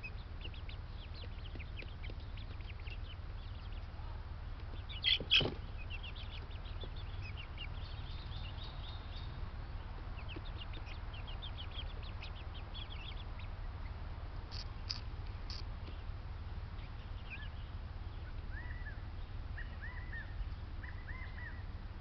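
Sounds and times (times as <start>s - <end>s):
small birds chirping: 0.0s - 21.8s
steady low hum: 0.0s - 22.0s
loud bird calls: 4.7s - 16.1s, 16.8s - 21.7s.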